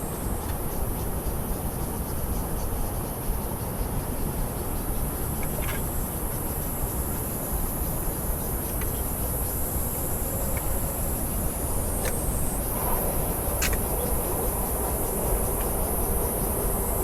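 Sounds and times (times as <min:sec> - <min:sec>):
faint ticks: 0:05.3 - 0:06.6, 0:08.6 - 0:09.3, 0:09.9 - 0:14.3
high-pitched insect buzzing: 0:12.0 - 0:14.4.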